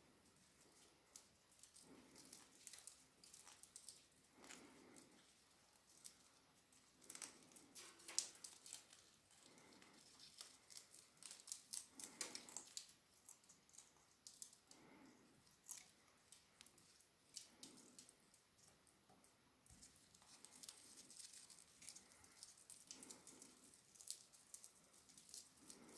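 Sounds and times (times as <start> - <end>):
small objects clicking and tapping: 7.0 - 25.9.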